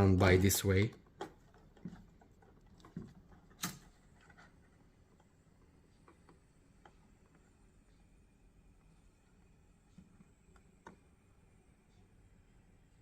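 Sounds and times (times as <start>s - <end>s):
faint clicks and taps from handling: 0.8s - 7.5s.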